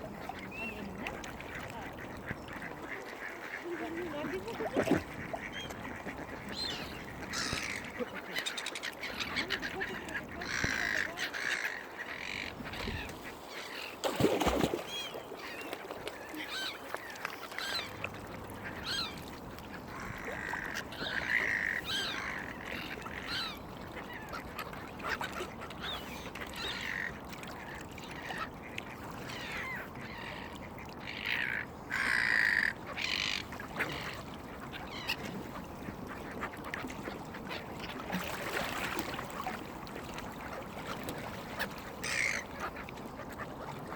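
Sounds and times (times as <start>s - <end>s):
ducks quacking: 0.3s - 13.9s, 19.8s - 27.2s, 29.4s - 39.6s, 40.5s - 43.9s.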